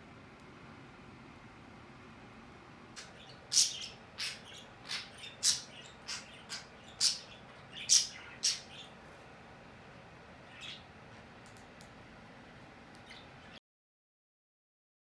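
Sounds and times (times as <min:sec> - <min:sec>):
bird chirping sharply: 0:03.0 - 0:08.9.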